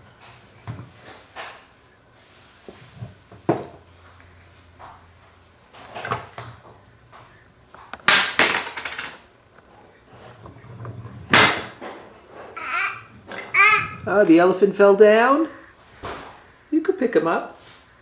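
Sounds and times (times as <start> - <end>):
knocks of hard objects: 8.0 - 9.2, 11.2 - 14.0.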